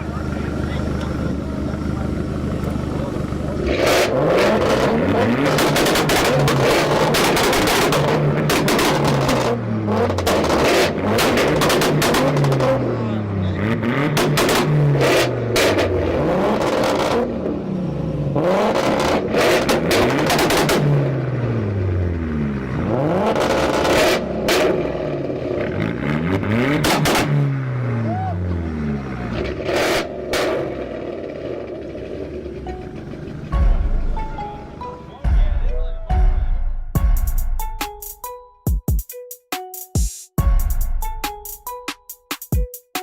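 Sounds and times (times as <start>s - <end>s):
car engine on launch limiter: 0.0s - 35.7s
exhaust popping and banging: 3.6s - 13.0s, 13.6s - 17.6s, 18.6s - 21.2s, 22.8s - 27.6s, 29.4s - 38.0s.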